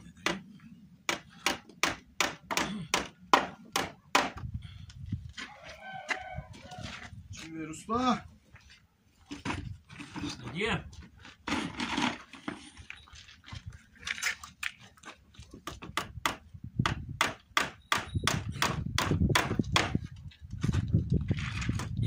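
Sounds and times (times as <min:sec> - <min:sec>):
hammer driving nails into wood: 0:15.6 - 0:20.0.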